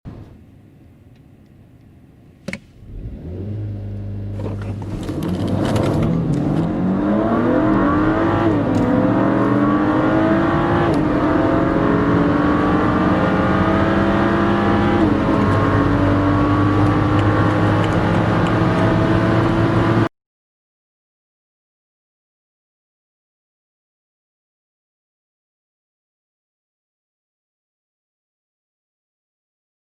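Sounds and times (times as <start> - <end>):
car engine accelerating: 2.7 - 20.1.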